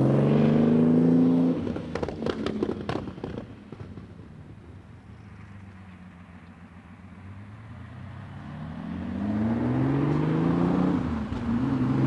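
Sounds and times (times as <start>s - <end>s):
car engine accelerating: 0.0s - 3.5s, 7.3s - 12.0s.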